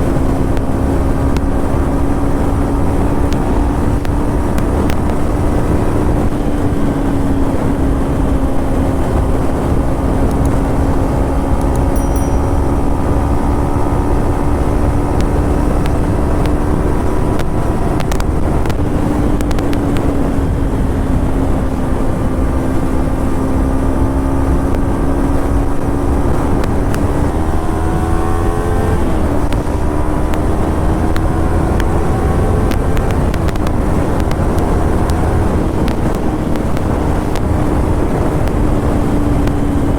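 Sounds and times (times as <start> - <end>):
motorcycle engine revving: 12.7 - 39.9.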